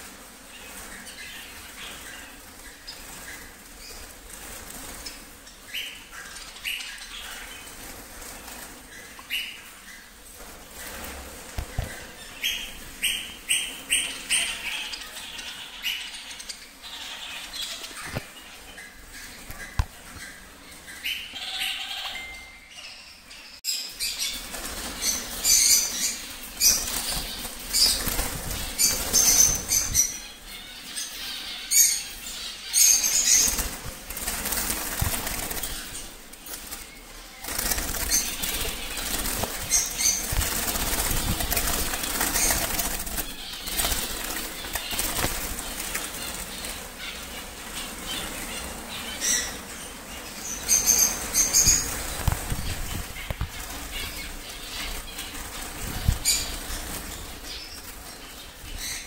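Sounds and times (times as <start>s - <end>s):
bird wings flapping: 10.3s - 12.2s, 24.3s - 30.1s, 33.1s - 47.1s, 51.2s - 58.0s.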